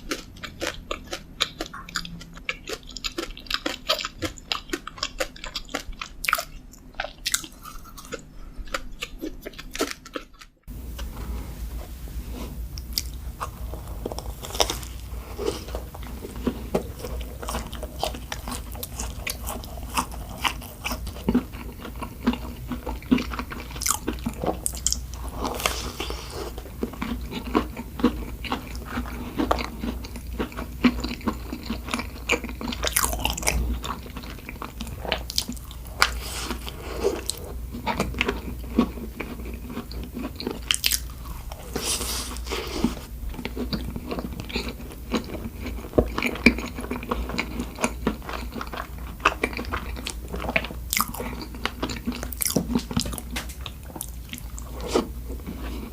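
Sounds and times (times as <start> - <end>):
biting and chewing: 0.0 - 11.2, 12.8 - 55.9.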